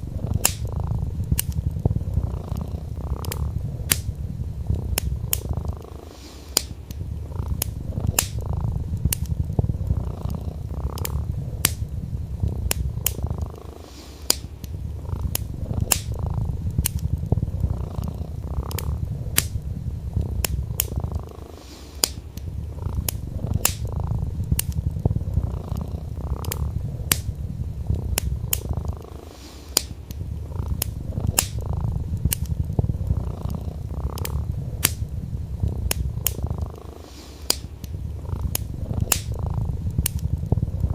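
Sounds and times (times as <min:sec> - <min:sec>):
cat purring: 0:00.0 - 0:40.9
wood fire crackling and popping: 0:00.0 - 0:40.9.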